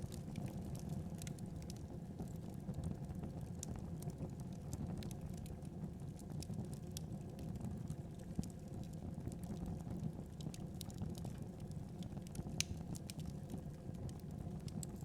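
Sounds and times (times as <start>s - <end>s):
fire crackling in fireplace: 0.0s - 15.0s.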